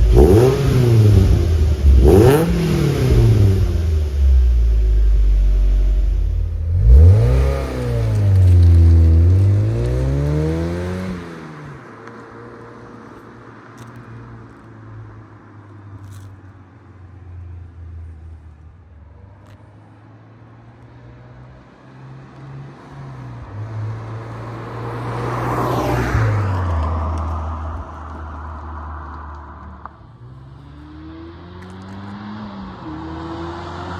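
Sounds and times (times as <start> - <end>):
car engine exhaust revving: 0.0 - 11.2.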